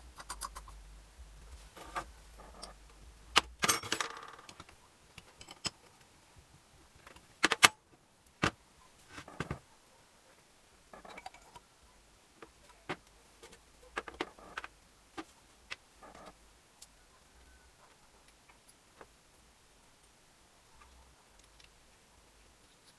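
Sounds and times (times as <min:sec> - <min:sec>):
metal parts and tools clinking: 0:03.4 - 0:05.9, 0:10.9 - 0:11.6.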